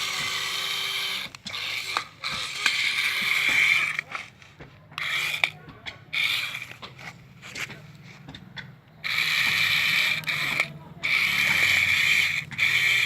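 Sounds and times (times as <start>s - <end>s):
small mechanism whirring: 0.0s - 4.4s, 5.0s - 7.7s, 9.0s - 13.0s
sharp clicks and knocks: 0.0s - 13.0s.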